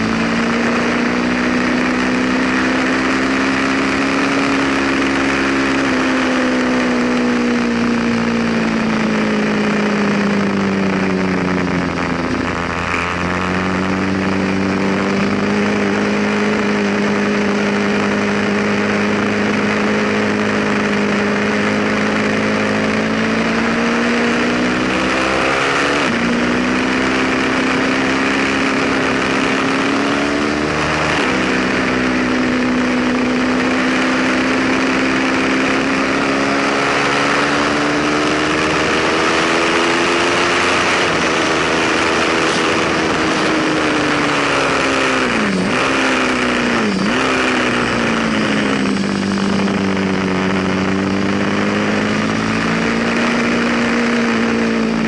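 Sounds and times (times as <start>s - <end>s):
motorcycle engine accelerating: 0.0s - 55.0s
wind rush: 38.6s - 55.0s.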